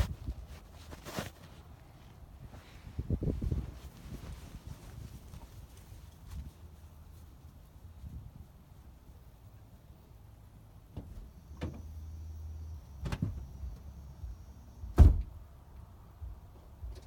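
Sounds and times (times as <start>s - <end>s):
truck cab clunks: 14.9s - 15.3s
truck door slam: 14.9s - 15.4s.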